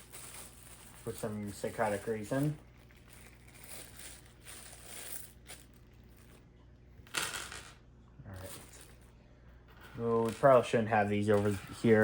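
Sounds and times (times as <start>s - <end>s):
plastic bag rustling and crinkling: 0.0s - 6.4s.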